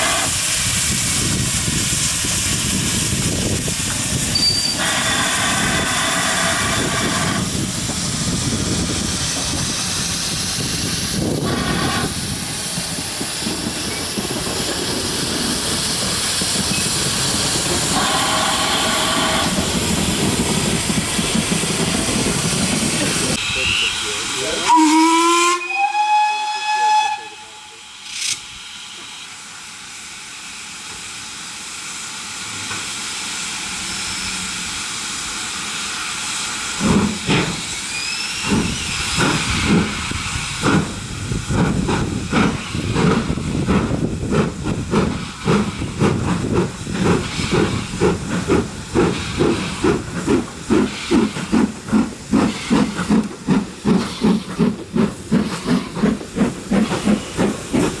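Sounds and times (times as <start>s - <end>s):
steam hissing: 0.0s - 58.0s
steam locomotive whistle: 4.3s - 7.5s, 17.6s - 19.7s, 23.4s - 28.2s.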